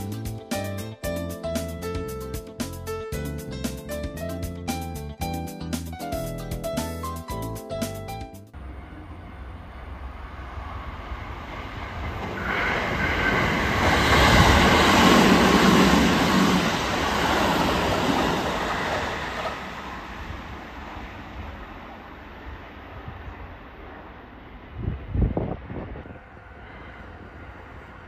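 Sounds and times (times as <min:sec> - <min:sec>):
electric train passing: 0:08.5 - 0:28.0.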